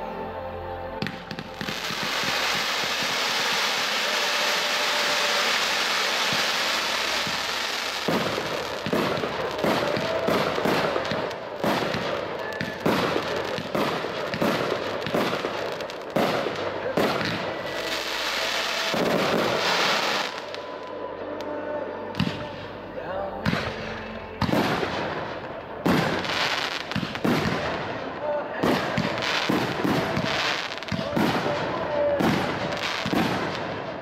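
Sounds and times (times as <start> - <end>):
fireworks hissing: 1.0 - 20.9
fireworks launching and bursting: 1.0 - 21.5, 22.1 - 22.8, 23.4 - 34.0.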